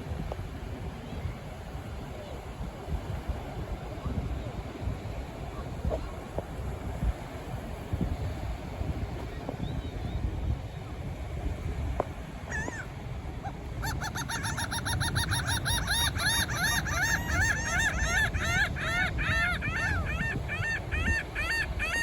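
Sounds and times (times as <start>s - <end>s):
wind and surf rumble: 0.0s - 22.0s
gull calling: 12.5s - 22.0s.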